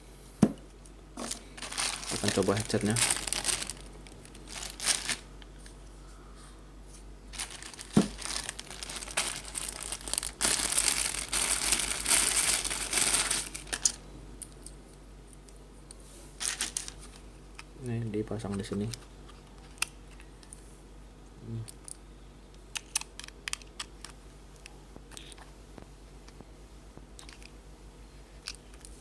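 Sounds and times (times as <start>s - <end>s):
plastic packaging crinkling: 1.2s - 5.3s, 7.3s - 14.0s, 16.4s - 17.2s.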